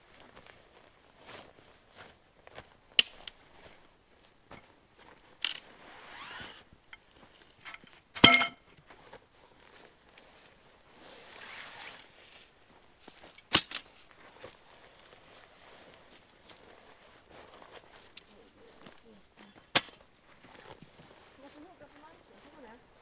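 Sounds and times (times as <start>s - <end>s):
ringing metallic clank: 8.2s - 8.6s.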